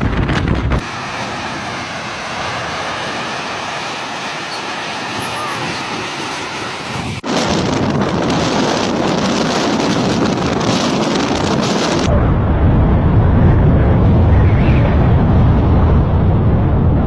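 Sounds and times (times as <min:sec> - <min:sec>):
deep loud rumble: 0:00.0 - 0:04.4, 0:06.8 - 0:17.0
wind: 0:00.0 - 0:17.0
heavy rain: 0:00.8 - 0:12.2.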